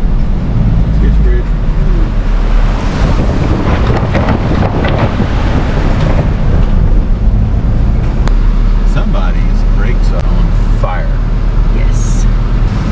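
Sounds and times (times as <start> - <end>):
truck rumbling over a bridge: 0.0 - 12.9
knocks and rattles: 3.1 - 8.3.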